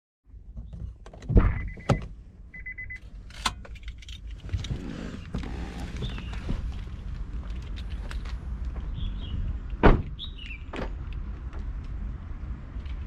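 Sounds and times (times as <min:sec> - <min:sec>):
loud thump: 0:01.3 - 0:02.0, 0:09.8 - 0:10.1.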